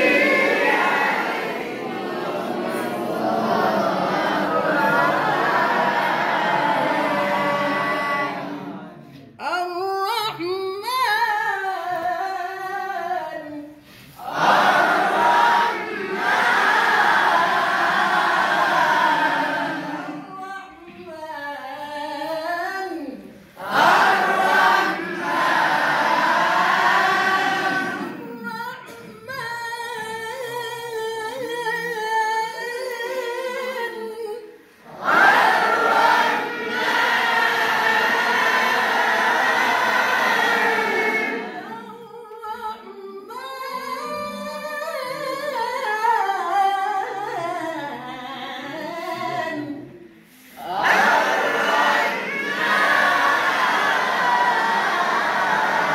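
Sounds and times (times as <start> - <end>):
group of voices chanting: 0.0 - 9.0, 14.2 - 20.2, 34.9 - 41.7, 50.6 - 55.9.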